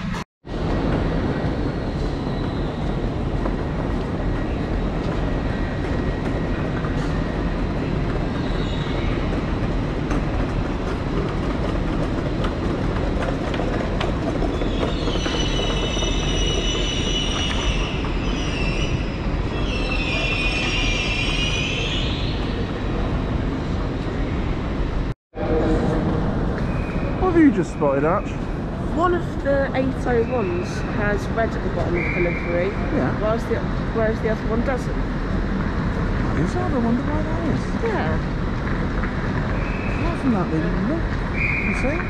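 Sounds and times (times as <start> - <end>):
train wheels rumbling on rail: 0.0 - 42.0
high wheel squeal: 14.2 - 22.7, 41.3 - 42.0.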